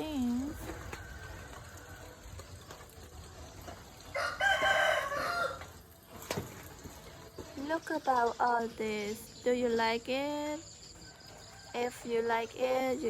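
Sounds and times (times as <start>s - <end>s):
rooster crowing: 4.1s - 5.7s.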